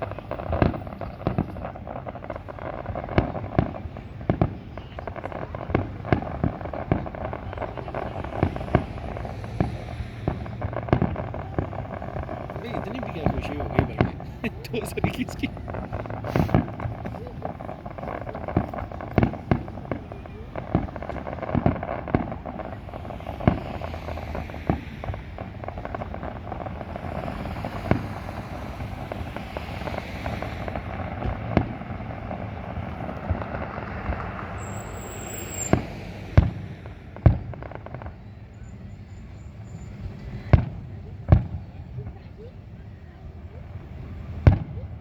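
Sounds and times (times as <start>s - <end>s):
firework rumble and crackle: 0.0s - 45.0s
firework shells bursting: 5.8s - 37.4s.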